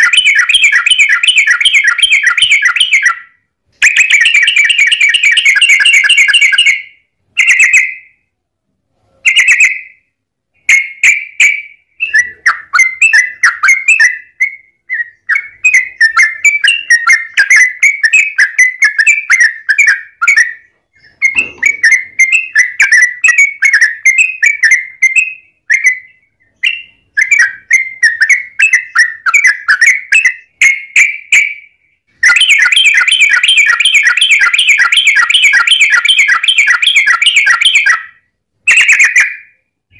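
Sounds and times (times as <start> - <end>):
bird singing chattering phrases: 0.0 - 8.0, 10.6 - 31.5.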